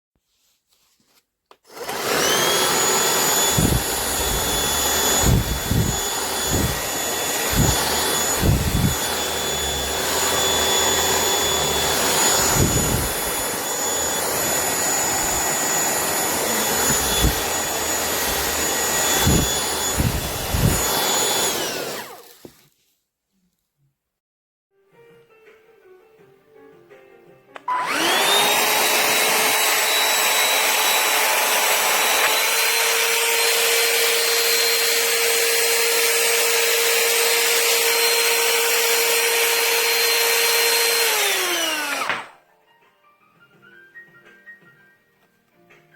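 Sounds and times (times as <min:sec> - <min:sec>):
handheld vacuum motor whine: 0:01.6 - 0:22.6, 0:27.6 - 0:42.4
low thumps: 0:03.4 - 0:10.1, 0:16.6 - 0:20.9.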